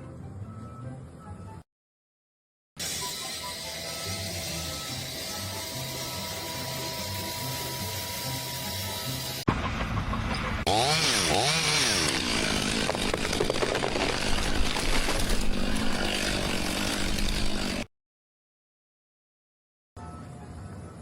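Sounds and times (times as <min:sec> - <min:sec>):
small engine revving: 0:02.8 - 0:09.5, 0:10.6 - 0:17.9.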